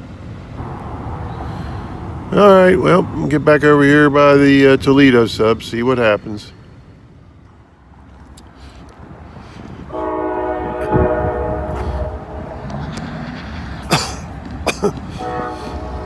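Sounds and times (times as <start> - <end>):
wind rumble on microphone: 7.9 - 16.0
locomotive air horn blast: 9.9 - 16.0.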